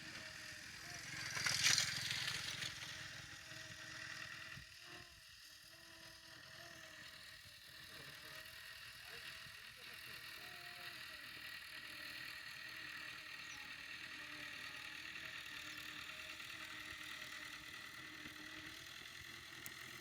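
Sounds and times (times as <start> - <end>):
tractor engine under load: 0.0 - 4.6, 12.1 - 20.0
faint steady whine: 0.0 - 20.0.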